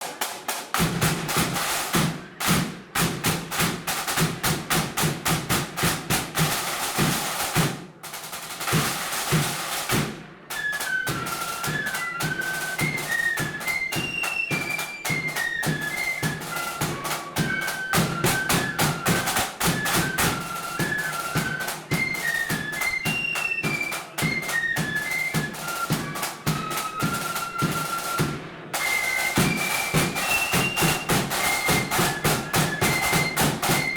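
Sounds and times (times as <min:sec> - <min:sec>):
snare drums with rolls: 0:00.0 - 0:33.9
flutes playing quick melody: 0:08.8 - 0:33.9.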